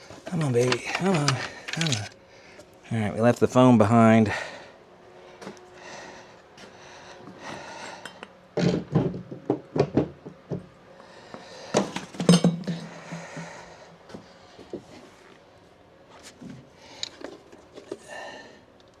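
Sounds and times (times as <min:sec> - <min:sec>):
metal tools clanking: 0:00.2 - 0:02.2, 0:12.2 - 0:12.8.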